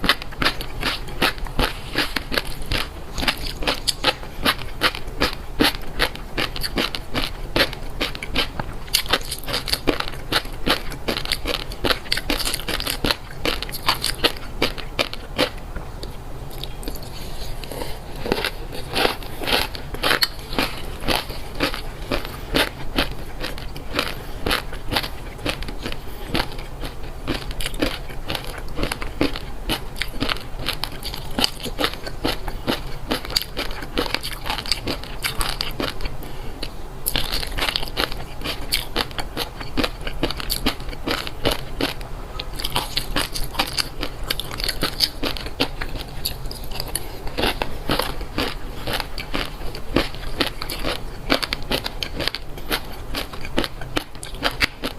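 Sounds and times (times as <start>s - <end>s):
person chewing crunchy food: 0.0s - 54.9s.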